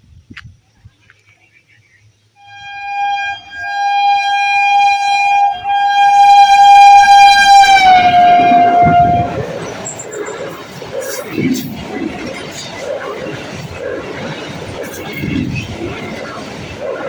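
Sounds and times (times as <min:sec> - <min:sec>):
train horn blast: 0:02.4 - 0:09.8
train rushing by: 0:02.4 - 0:17.0.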